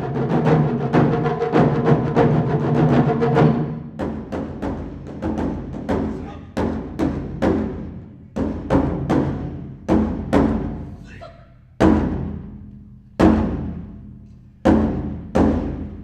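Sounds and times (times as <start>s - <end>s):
taiko drums struck rhythmically: 0.0s - 16.0s.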